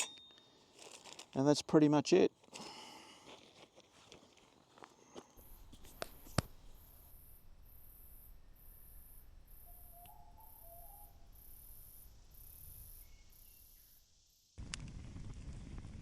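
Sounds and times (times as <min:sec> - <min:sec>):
cricket chirping: 0:05.1 - 0:14.6
faint bird chirps: 0:05.4 - 0:14.5.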